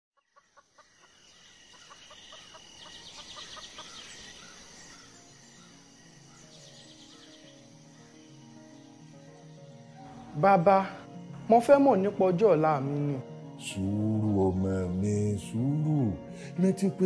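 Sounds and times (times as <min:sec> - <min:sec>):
birds calling and chirping: 0:00.2 - 0:17.0
high insect-like hum: 0:00.3 - 0:17.0
low melodic music: 0:04.6 - 0:17.0.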